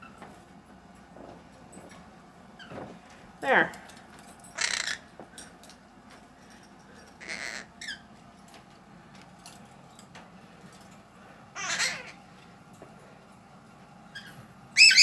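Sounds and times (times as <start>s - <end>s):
parrot squawking and chirping: 4.6s - 5.1s, 7.2s - 8.1s, 11.6s - 12.2s, 14.1s - 15.0s.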